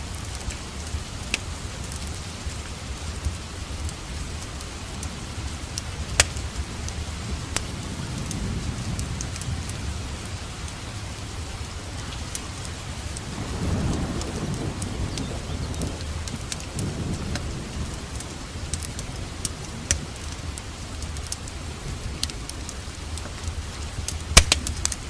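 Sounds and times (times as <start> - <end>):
steady rain: 0.0 - 25.0
thunder rumbling: 0.0 - 25.0
wood fire crackling: 0.0 - 25.0.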